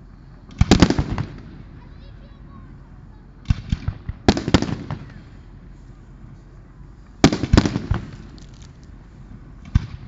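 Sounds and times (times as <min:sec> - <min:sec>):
fireworks bursting with bangs: 0:00.0 - 0:10.0.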